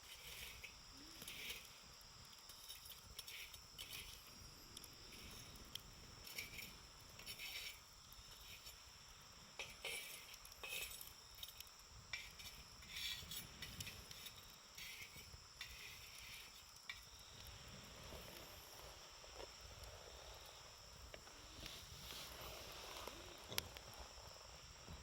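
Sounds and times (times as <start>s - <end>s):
campfire crackling: 0.0s - 25.0s
insects trilling: 0.0s - 25.0s.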